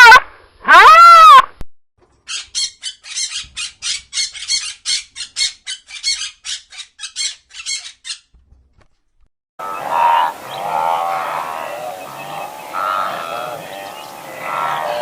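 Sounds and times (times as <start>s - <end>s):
loud wavering animal call: 9.6s - 15.0s.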